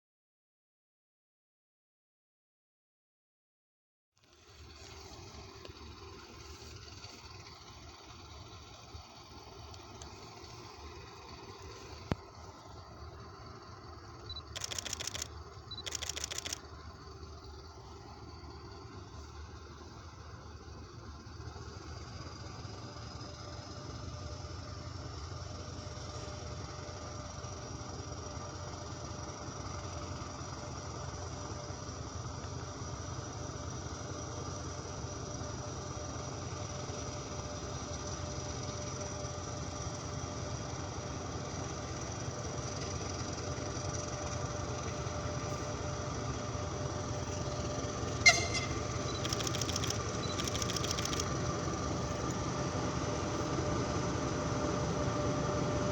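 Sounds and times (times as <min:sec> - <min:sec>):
diesel locomotive engine drone: 0:04.2 - 0:55.9
sharp click: 0:14.5 - 0:16.6, 0:48.3 - 0:51.3
rapid ticking: 0:48.8 - 0:51.3.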